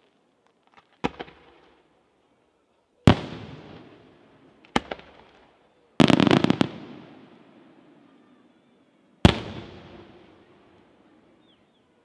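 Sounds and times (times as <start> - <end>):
firework crackling: 3.1 - 7.8, 9.2 - 11.0.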